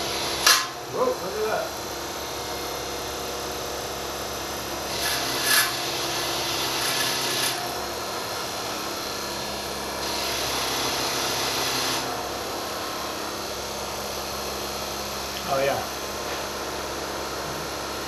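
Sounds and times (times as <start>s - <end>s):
wire wheel motor humming: 0.0s - 18.0s
blade scratching on wire wheel: 4.9s - 7.8s.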